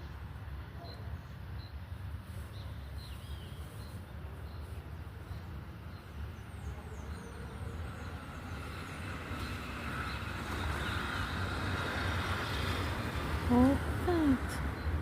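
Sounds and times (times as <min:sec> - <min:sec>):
birds chirping: 0:00.8 - 0:11.3.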